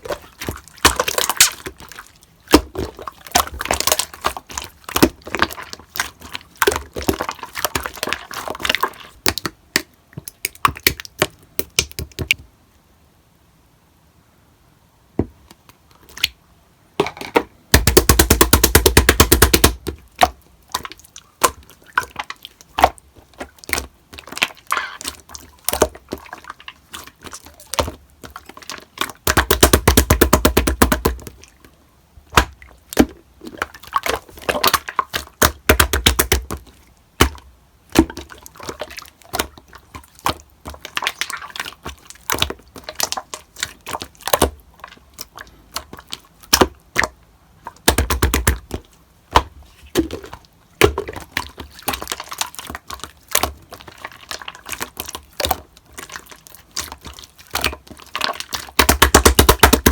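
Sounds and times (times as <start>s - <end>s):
slime clicking and popping: 47.8s - 49.5s, 57.6s - 59.9s.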